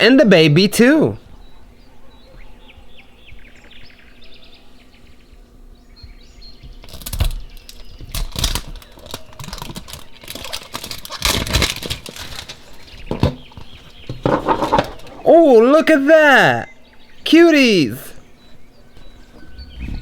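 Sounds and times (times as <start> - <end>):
faint bird chirps: 1.2 - 10.7, 16.2 - 20.0
plastic packaging crinkling: 6.8 - 15.2.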